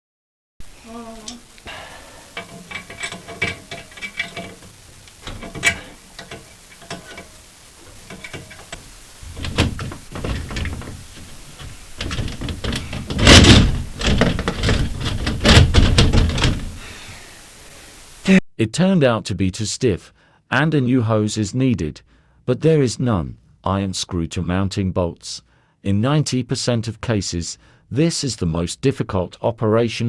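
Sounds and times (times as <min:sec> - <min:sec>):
tool clattering on toilet cistern: 0:01.3 - 0:17.0.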